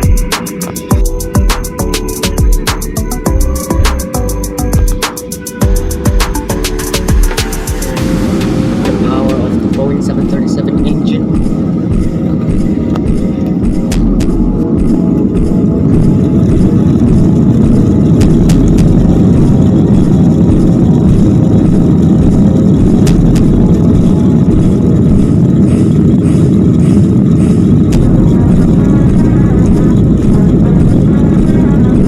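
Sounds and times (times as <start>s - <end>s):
jet engine and airframe rumble: 0.0s - 32.0s.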